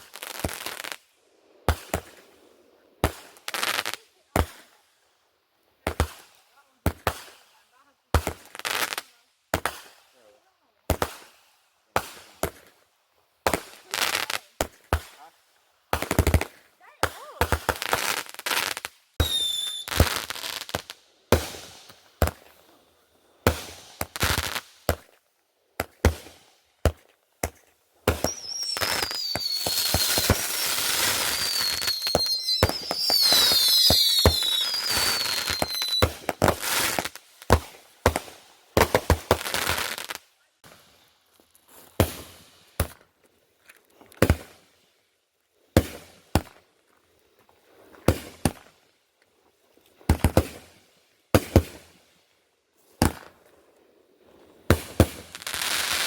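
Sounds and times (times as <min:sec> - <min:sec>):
fireworks bangs: 0:15.9 - 0:22.8, 0:23.4 - 0:25.2, 0:25.8 - 0:40.8, 0:54.7 - 0:56.0
fireworks whistles falling in pitch: 0:19.2 - 0:20.5, 0:28.1 - 0:37.1.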